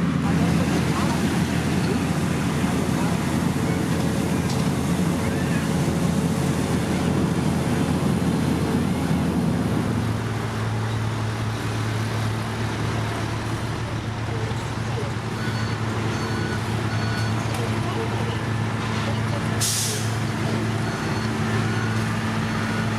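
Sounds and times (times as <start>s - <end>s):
diesel engines of paving machinery: 0.0s - 22.9s.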